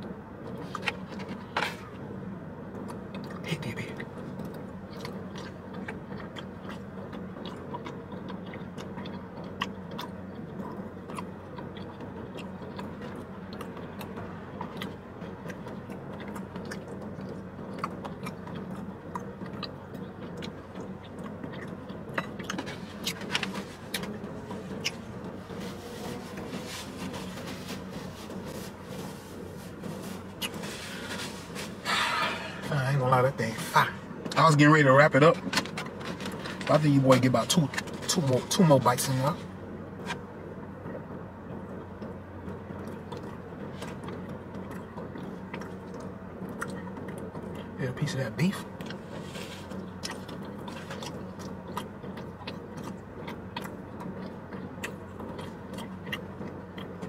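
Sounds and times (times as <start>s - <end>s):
steady low hum: 0.0s - 57.0s
person chewing food: 4.0s - 32.8s, 42.8s - 47.8s, 48.6s - 57.0s
napkin rubbing over mouth: 24.9s - 32.7s.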